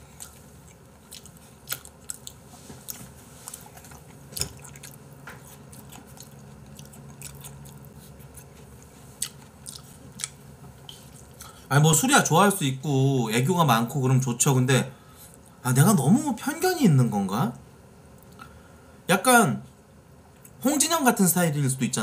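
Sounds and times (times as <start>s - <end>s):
person chewing: 0.0s - 11.7s.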